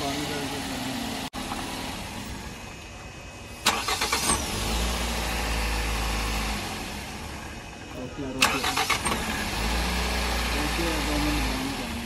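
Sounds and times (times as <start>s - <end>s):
car engine running: 0.0s - 12.0s
ignition click: 3.6s - 4.4s, 8.4s - 9.3s
engine starter cranking: 3.6s - 4.8s, 8.3s - 9.6s.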